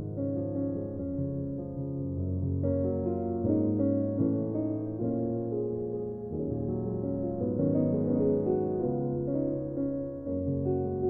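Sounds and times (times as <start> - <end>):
slow solo piano piece: 0.0 - 11.0.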